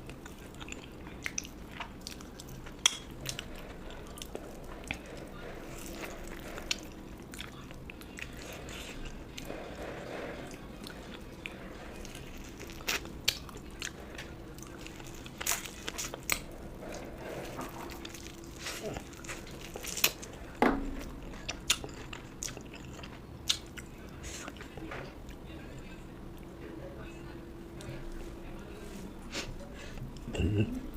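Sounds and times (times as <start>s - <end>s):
person chewing and biting food: 11.9s - 24.6s.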